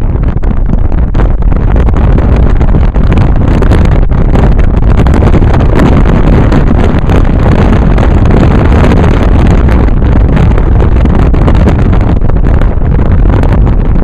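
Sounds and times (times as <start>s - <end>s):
moving car rumble: 0.0s - 14.0s
wind buffeting microphone: 0.0s - 14.0s.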